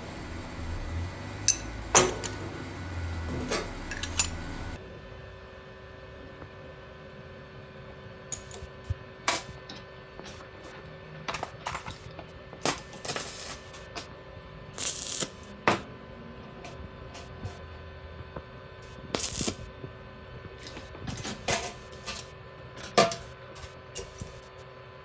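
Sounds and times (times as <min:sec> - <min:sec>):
faint steady hum: 0:00.0 - 0:07.1.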